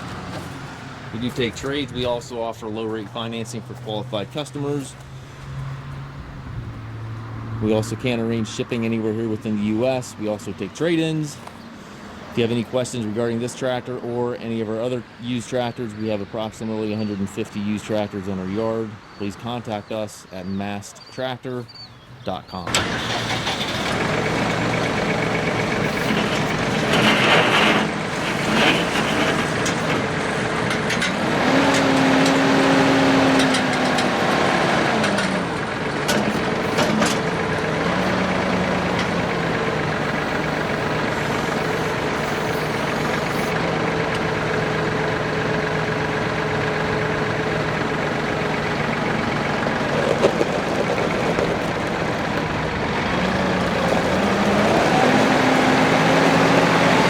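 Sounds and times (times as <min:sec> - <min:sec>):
tractor diesel engine running: 0:22.7 - 0:57.0.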